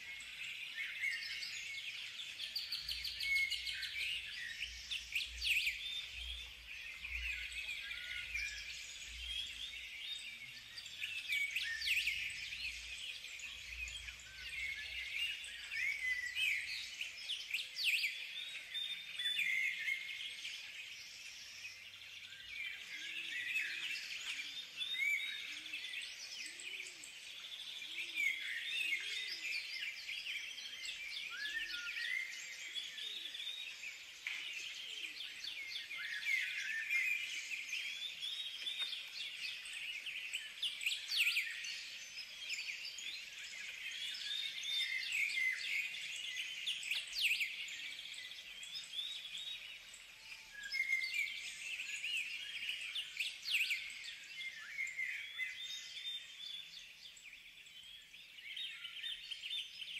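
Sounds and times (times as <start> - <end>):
birds chirping and twittering: 0.0 - 59.9.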